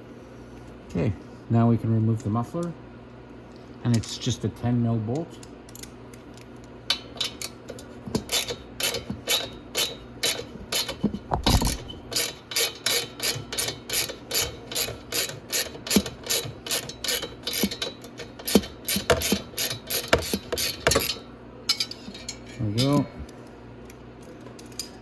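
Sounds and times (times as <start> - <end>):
ratchet wrench clicking: 8.2 - 11.0, 11.7 - 21.2.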